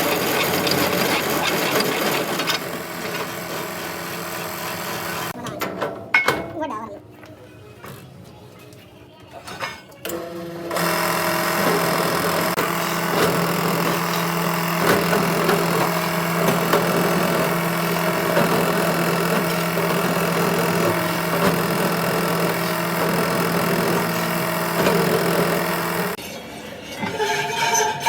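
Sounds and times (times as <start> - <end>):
machine humming: 0.0 - 5.4, 10.1 - 26.2.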